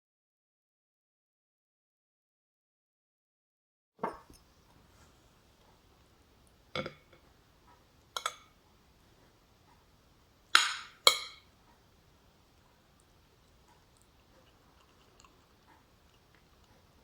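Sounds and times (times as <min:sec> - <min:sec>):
utensils clinking against dishes: 0:10.6 - 0:11.5.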